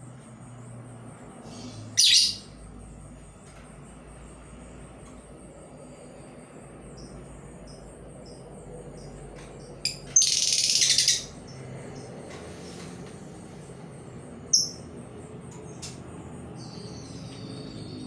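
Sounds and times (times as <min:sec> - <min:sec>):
decoy bird chirps: 0:01.5 - 0:02.5, 0:09.9 - 0:11.5.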